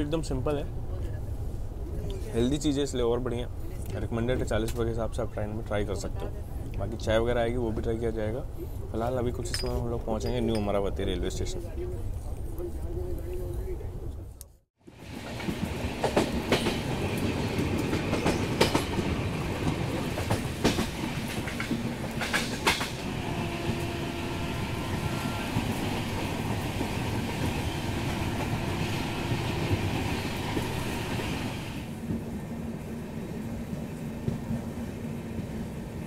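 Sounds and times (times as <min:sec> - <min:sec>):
train wheels rumbling on track: 0:14.9 - 0:36.0.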